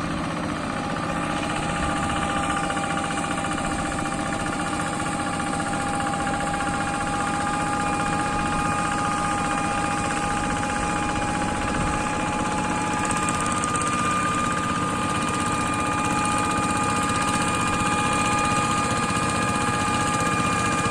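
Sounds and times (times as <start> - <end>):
mechanical whine: 0.0 - 20.9
tractor engine running: 0.0 - 20.9.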